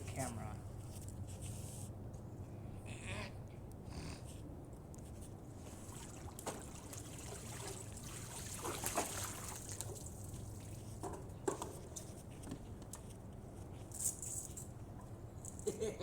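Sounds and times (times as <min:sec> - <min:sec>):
steady low hum: 0:00.0 - 0:16.0
faint water trickling: 0:05.0 - 0:11.2.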